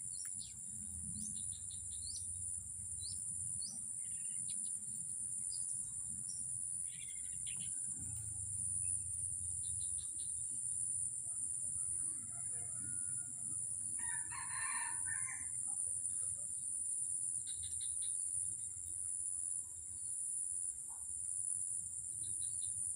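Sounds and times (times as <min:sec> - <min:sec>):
rooster crow: 0:11.9 - 0:15.7.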